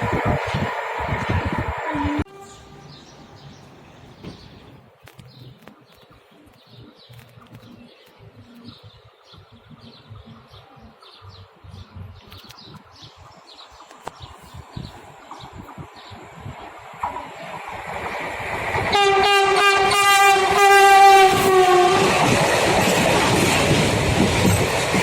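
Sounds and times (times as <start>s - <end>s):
small birds chirping: 2.4s - 17.4s.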